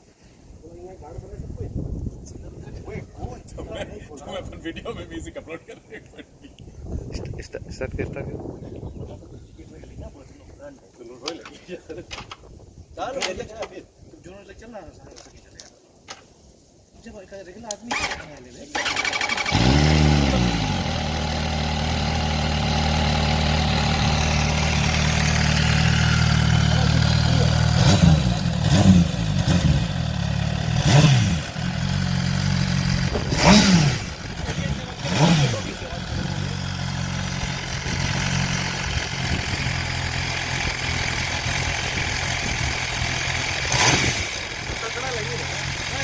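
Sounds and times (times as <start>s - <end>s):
motorcycle engine idling: 18.8s - 46.0s.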